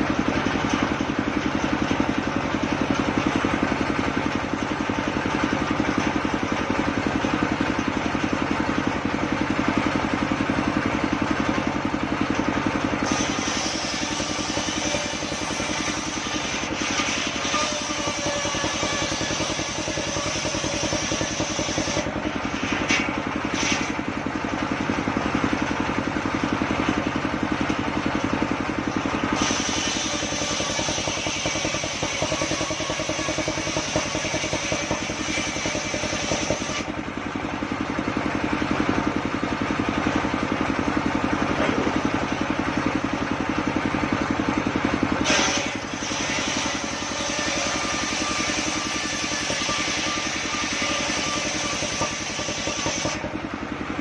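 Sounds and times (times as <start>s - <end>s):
sawmill engine running: 0.0s - 54.0s
saw blade cutting wood: 11.6s - 24.9s, 28.7s - 37.0s, 45.2s - 53.4s.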